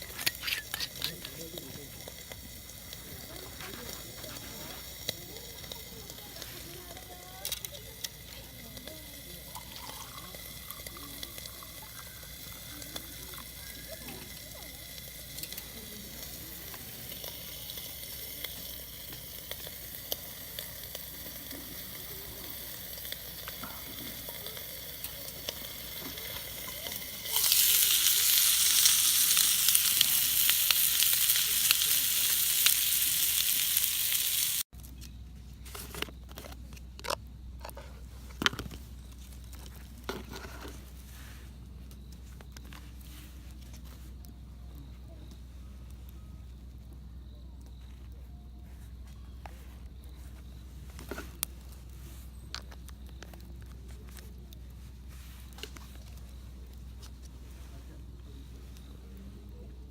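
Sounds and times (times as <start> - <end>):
campfire crackles and pops: 0.0 - 34.7, 51.0 - 57.4
food sizzling in a pan: 0.0 - 34.7.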